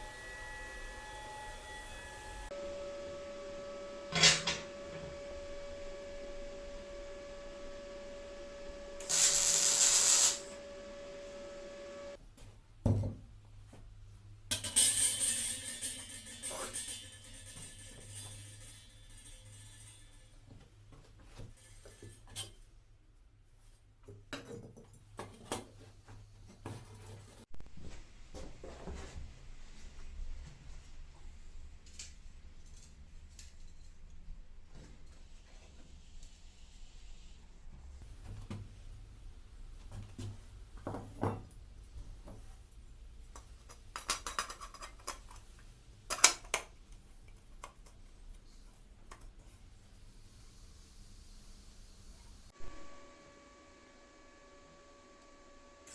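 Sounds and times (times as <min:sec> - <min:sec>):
metal pieces clinking: 0:09.0 - 0:10.5.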